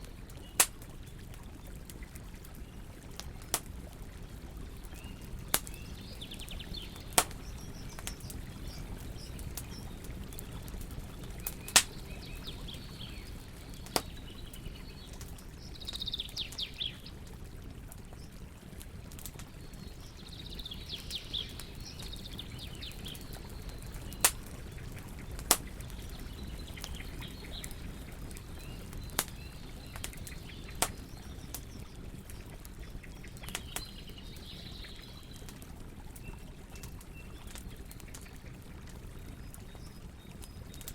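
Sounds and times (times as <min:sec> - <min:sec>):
campfire crackling and popping: 0:00.0 - 0:40.9
birds chirping: 0:04.2 - 0:17.2, 0:19.6 - 0:35.5.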